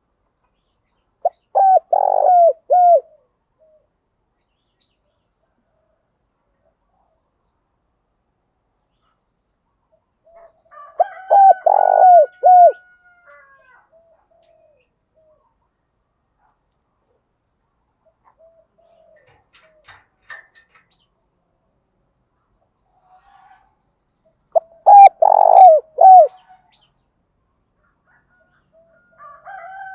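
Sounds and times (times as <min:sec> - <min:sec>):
dove cooing: 0:01.2 - 0:03.9, 0:10.2 - 0:15.4, 0:18.0 - 0:20.0, 0:24.6 - 0:26.5.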